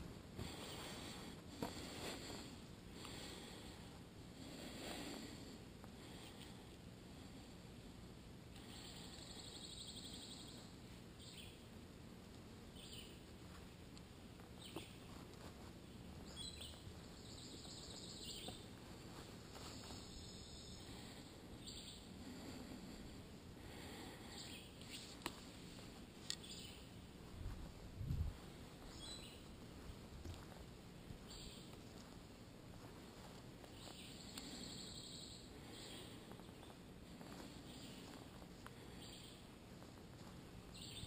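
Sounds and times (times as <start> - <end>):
low steady rumble: 0.0 - 41.0
birds chirping and trilling: 8.6 - 11.6, 15.9 - 18.8, 19.7 - 23.1, 23.9 - 25.2, 28.8 - 29.6, 31.2 - 31.8, 33.6 - 39.5, 40.7 - 41.0.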